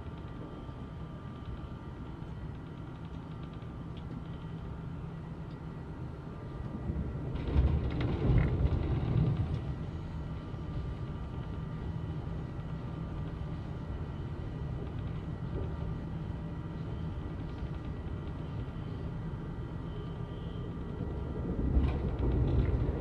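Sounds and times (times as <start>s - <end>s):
train wheels rumbling on rails: 6.2s - 19.5s, 20.7s - 23.0s.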